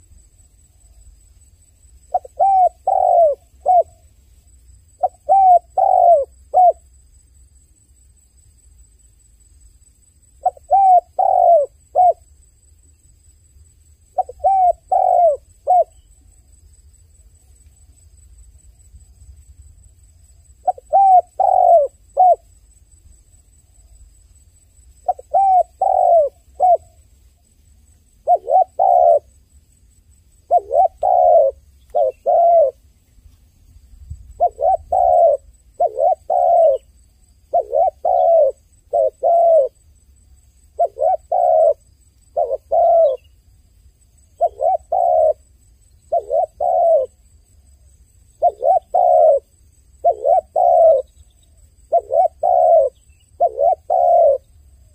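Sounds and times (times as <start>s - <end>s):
dove cooing: 2.1s - 4.0s, 5.0s - 6.8s, 10.4s - 12.2s, 14.1s - 16.1s, 20.6s - 22.5s, 25.0s - 27.0s, 28.2s - 29.4s, 30.5s - 32.8s, 34.3s - 39.8s, 40.7s - 43.3s, 44.4s - 45.5s, 46.1s - 47.2s, 48.4s - 54.9s.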